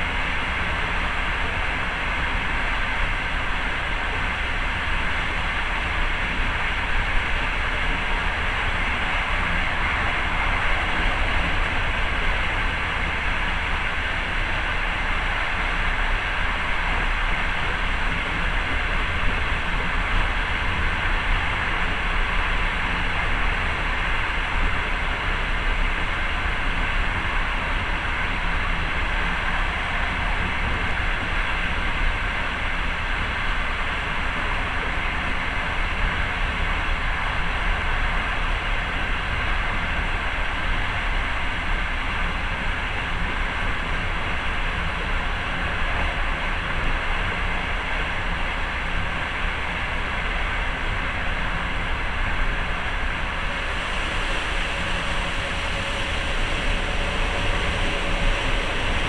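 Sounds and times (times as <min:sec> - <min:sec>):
train wheels on rails: 0:50.7 - 0:59.0.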